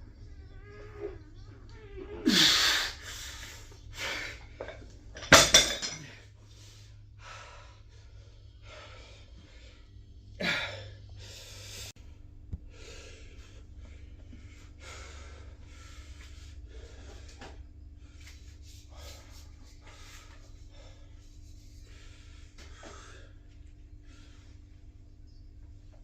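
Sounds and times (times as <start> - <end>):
person breathing hard: 6.5 - 11.9, 12.6 - 24.8.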